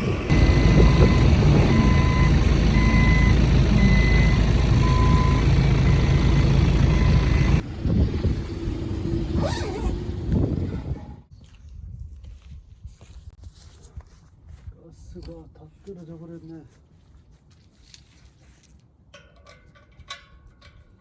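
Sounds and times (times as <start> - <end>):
vehicle engine running: 0.0 - 10.4
reversing beeper: 0.3 - 7.6.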